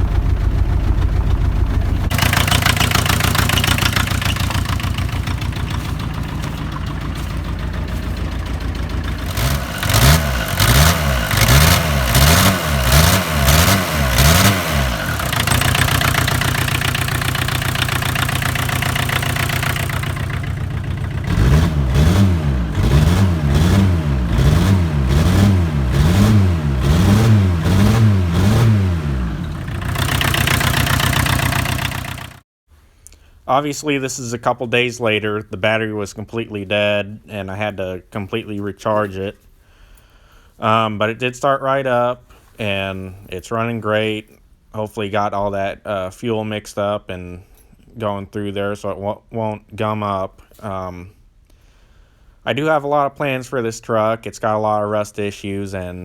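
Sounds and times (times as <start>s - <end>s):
small truck engine revving: 0.0s - 32.4s.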